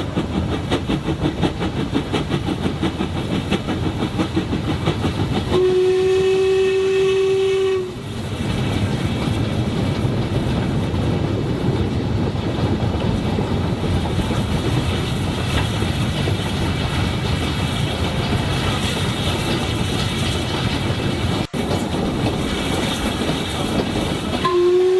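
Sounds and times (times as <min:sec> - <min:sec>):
train rumbling along track: 0:00.0 - 0:24.9
steam train whistle: 0:05.5 - 0:08.1, 0:24.4 - 0:24.9.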